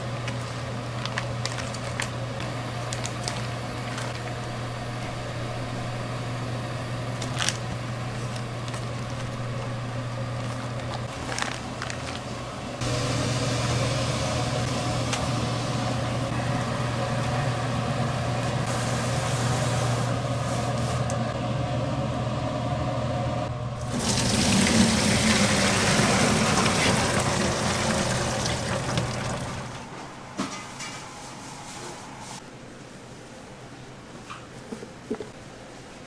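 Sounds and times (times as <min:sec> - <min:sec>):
low machine hum: 0:00.0 - 0:36.0
water running: 0:23.8 - 0:29.8.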